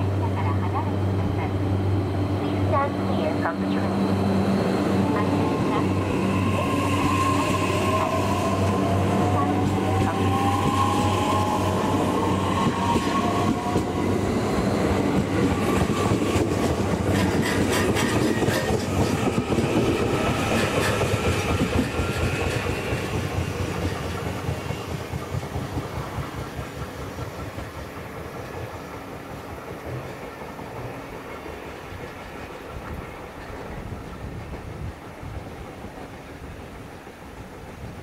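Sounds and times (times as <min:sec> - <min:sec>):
wheels clacking over rail joints: 0:12.4 - 0:34.8.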